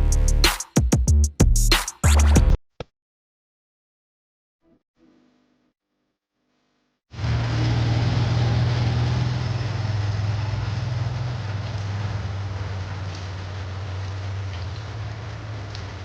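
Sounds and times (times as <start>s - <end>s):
road or wind noise: 7.2s - 16.0s
vehicle engine running: 7.2s - 16.0s.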